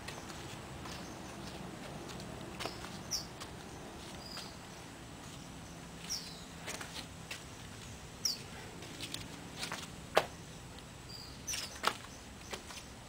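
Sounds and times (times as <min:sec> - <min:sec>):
low background hum: 0:00.0 - 0:13.0
small bird chirping: 0:02.6 - 0:06.6, 0:07.8 - 0:08.5, 0:10.4 - 0:13.0.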